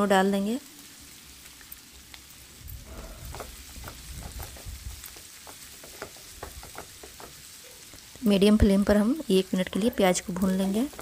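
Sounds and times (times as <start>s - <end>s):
onions sizzling in oil: 0.0s - 11.0s
spatula tapping pan: 2.9s - 8.2s, 9.7s - 11.0s.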